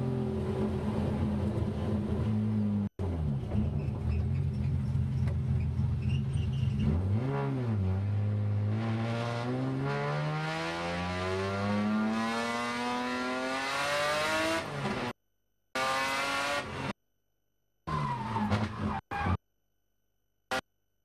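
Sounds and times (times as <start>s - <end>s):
race car engine accelerating: 6.7s - 15.1s.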